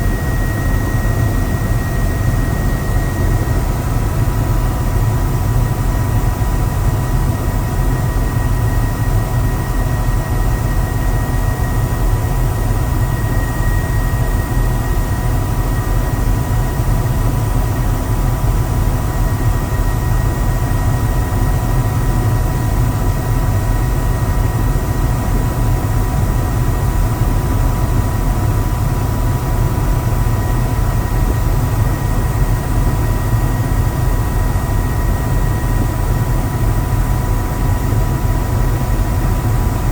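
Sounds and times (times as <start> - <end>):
helicopter rotor and engine rumble: 0.0 - 39.9.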